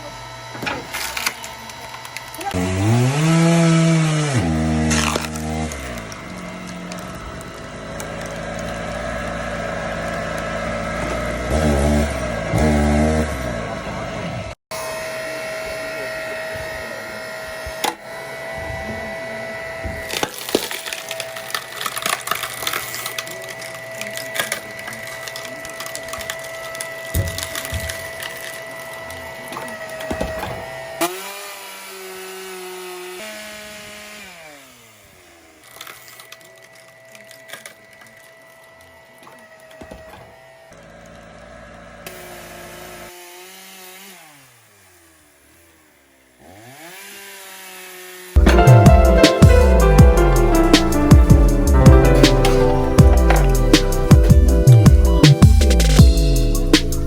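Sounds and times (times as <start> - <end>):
motor whining: 0.0 - 43.1, 48.2 - 57.0
logs cracking and splintering: 0.8 - 13.2, 19.8 - 44.3.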